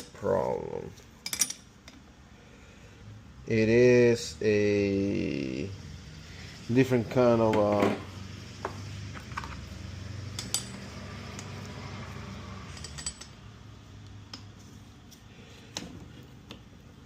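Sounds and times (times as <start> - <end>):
metal hand tools clinking: 10.3 - 11.5, 12.7 - 13.4.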